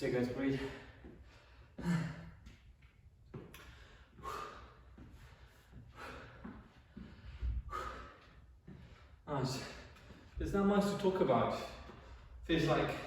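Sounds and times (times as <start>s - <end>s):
man breathing hard: 0.5s - 2.6s, 3.5s - 10.4s, 11.6s - 13.0s.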